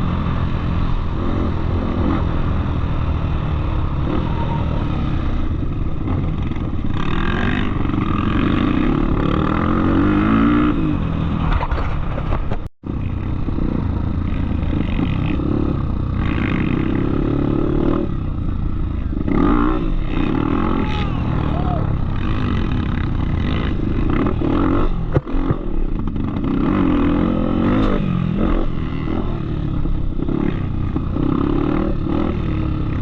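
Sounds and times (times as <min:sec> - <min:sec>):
off-road motorcycle engine revving: 0:00.0 - 0:33.0.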